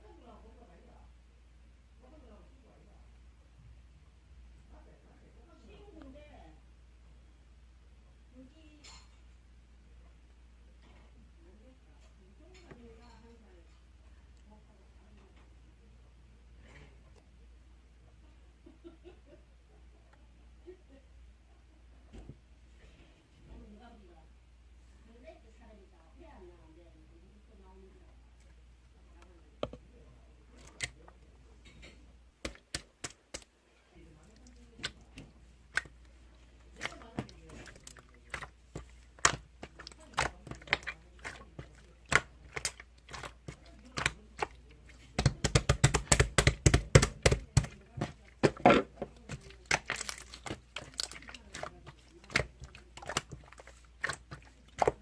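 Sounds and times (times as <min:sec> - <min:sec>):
slime clicking and popping: 0:32.4 - 0:33.5, 0:36.8 - 0:55.0.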